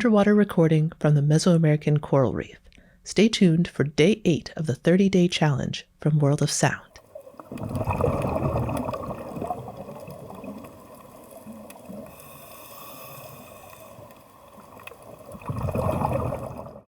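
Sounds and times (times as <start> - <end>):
water sloshing and gurgling: 6.9 - 16.9
faint clicks: 7.1 - 15.5.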